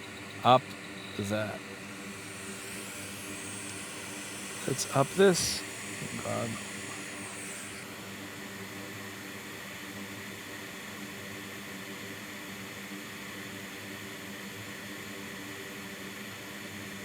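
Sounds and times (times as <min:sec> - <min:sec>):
fan hiss: 0:00.0 - 0:08.8.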